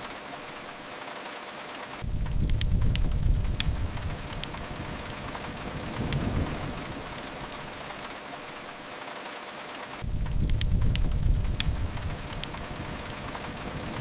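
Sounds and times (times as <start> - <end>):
rain on a window: 0.0 - 14.0
wood fire crackling: 0.0 - 14.0
low rumble: 2.0 - 8.0, 10.0 - 14.0.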